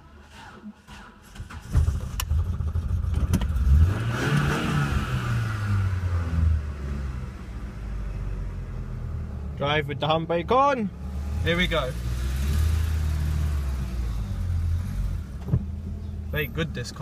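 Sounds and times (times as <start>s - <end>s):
car engine cold start: 0.0s - 6.3s.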